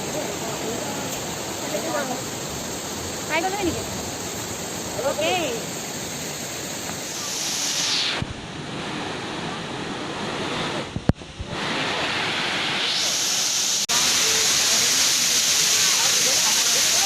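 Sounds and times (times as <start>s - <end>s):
falling water rushing: 0.0s - 17.0s.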